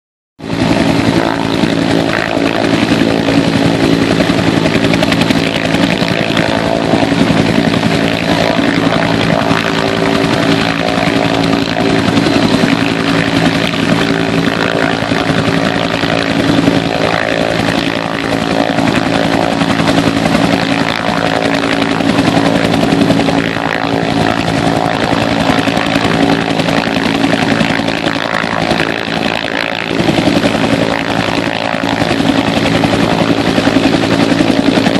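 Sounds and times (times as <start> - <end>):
helicopter rotor beat: 0.4 - 34.9
helicopter turbine hum: 0.4 - 34.9.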